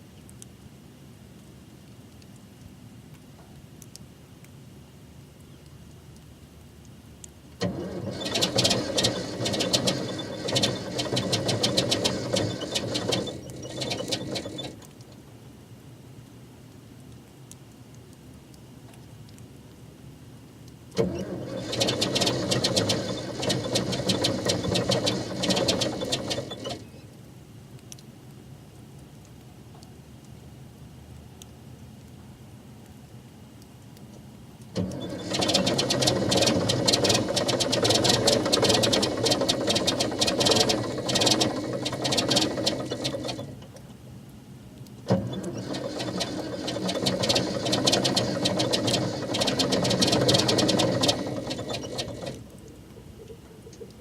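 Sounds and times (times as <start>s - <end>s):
old diesel engine running roughly: 7.6s - 14.8s, 21.0s - 26.8s, 34.8s - 43.5s, 45.1s - 52.4s.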